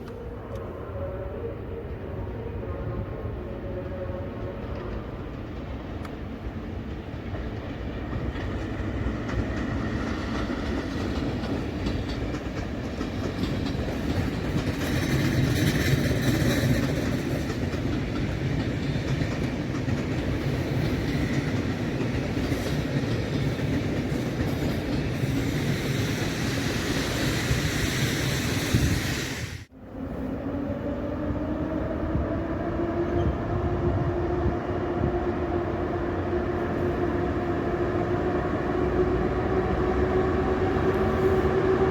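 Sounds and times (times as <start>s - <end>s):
train wheels clattering over rail joints: 6.8s - 28.9s.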